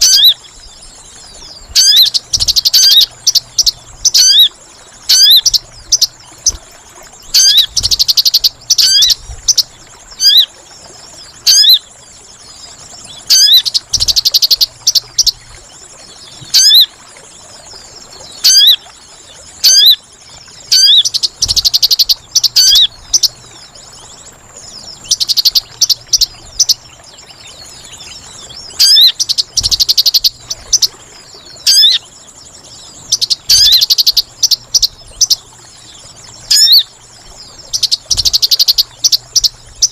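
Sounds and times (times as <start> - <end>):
bird calls: 0.0 - 39.9.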